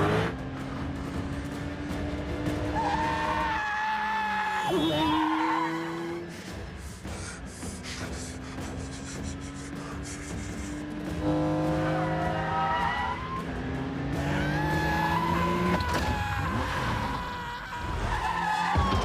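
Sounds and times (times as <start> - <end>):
sports car engine revving: 0.0 - 3.4, 7.6 - 15.8
tires squealing: 2.5 - 19.0.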